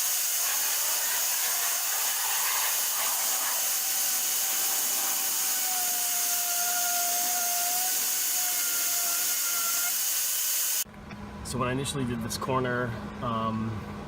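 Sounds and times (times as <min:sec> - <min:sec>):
power tool hissing and whining: 0:00.0 - 0:10.8.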